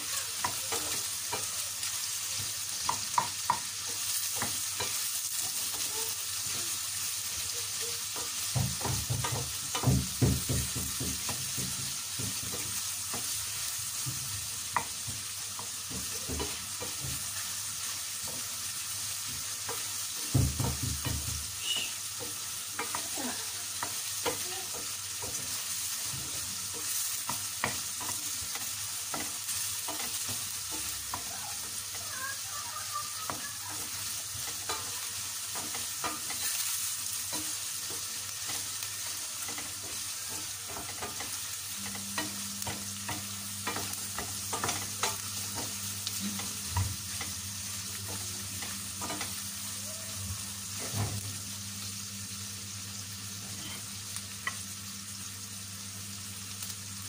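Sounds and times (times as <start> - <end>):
meat and onion sizzling in a pan: 0.0 - 57.0
wooden spatula scraping a pan: 53.4 - 53.9.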